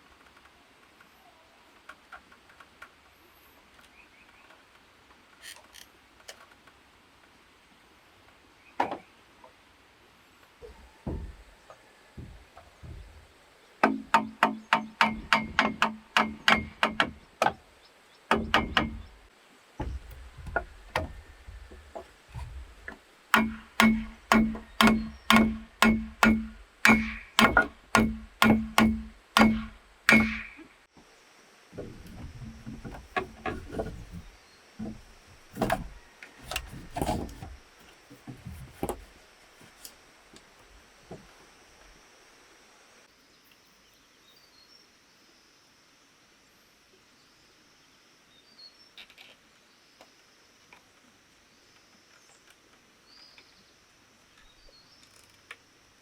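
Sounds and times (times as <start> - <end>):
tool striking bamboo: 13.8 - 17.6, 18.3 - 19.2, 23.3 - 30.7, 31.8 - 39.1.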